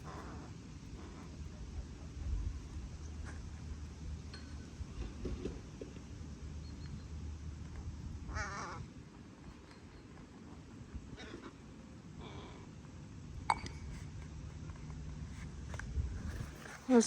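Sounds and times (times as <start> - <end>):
crow calling: 0.0 - 1.3, 8.3 - 8.9
low background rumble: 0.0 - 17.0.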